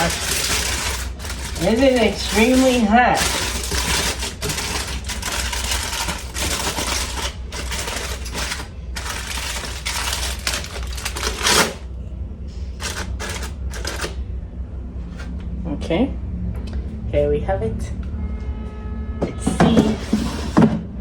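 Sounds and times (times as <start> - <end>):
air fryer basket rattling: 0.0 - 11.9, 12.8 - 14.2
low steady hum: 0.0 - 21.0.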